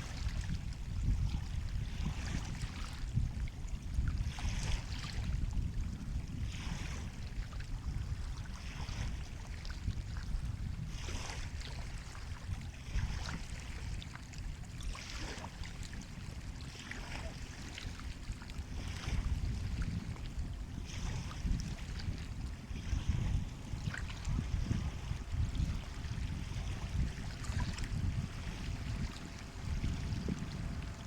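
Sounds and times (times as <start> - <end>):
waves washing in: 0.0 - 0.4, 10.8 - 31.0
surf rumble: 0.0 - 31.0
wind on microphone: 0.0 - 31.0.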